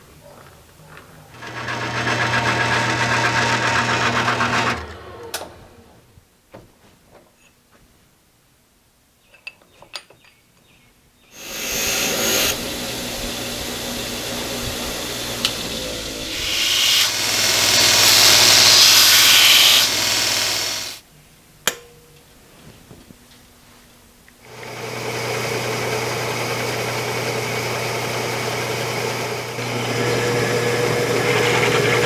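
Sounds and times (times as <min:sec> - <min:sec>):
electric power tool running: 0:01.4 - 0:06.0, 0:11.3 - 0:21.0, 0:24.4 - 0:32.0.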